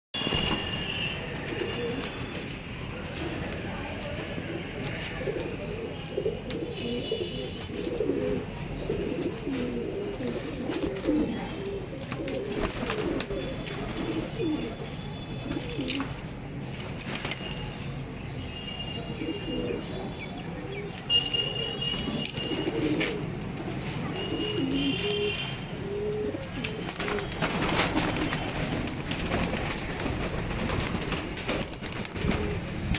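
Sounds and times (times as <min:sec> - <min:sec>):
pigeons cooing: 0:01.3 - 0:16.4, 0:21.9 - 0:32.9
wings flapping: 0:12.2 - 0:14.2, 0:26.6 - 0:32.9.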